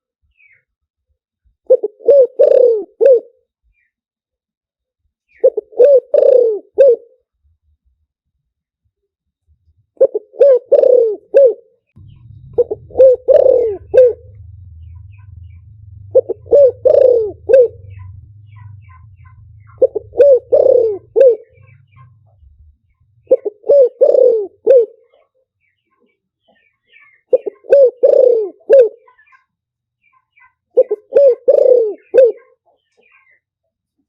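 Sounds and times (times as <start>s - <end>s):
dove cooing: 1.7s - 3.4s, 5.4s - 7.1s, 10.0s - 22.6s, 23.2s - 25.2s, 27.3s - 29.2s, 30.8s - 32.6s
faint low hum: 12.0s - 24.0s.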